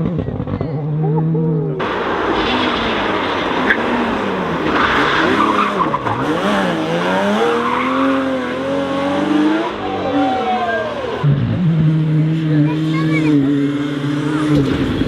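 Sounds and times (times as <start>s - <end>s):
rally car engine: 0.0s - 15.0s
tyres scrabbling on road: 1.8s - 11.3s.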